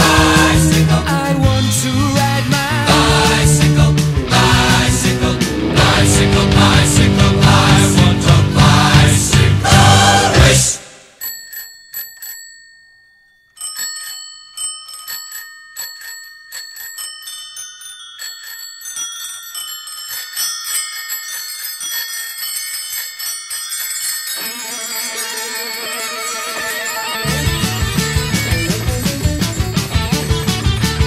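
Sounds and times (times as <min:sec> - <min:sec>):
electric guitar: 0:00.0 - 0:10.5, 0:26.4 - 0:31.0
bicycle bells ringing: 0:11.1 - 0:31.0.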